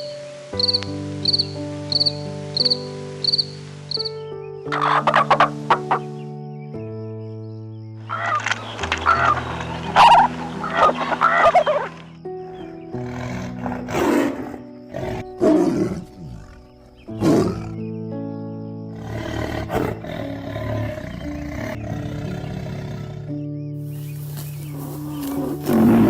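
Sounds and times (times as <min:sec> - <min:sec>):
background music sustained notes: 0:00.0 - 0:26.0
loud animal calls: 0:04.7 - 0:06.1, 0:08.0 - 0:15.5.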